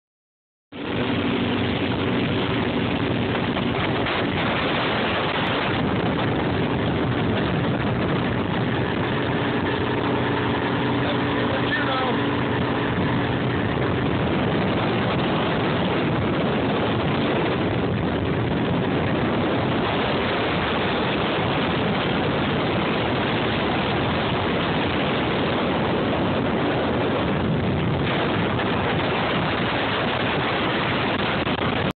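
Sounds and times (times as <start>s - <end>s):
motorboat engine and water rushing: 0.7s - 31.9s.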